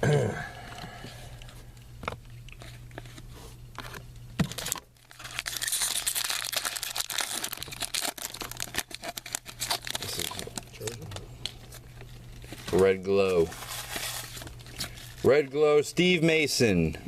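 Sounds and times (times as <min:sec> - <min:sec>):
wrapper tearing and crinkling: 0:03.8 - 0:15.4.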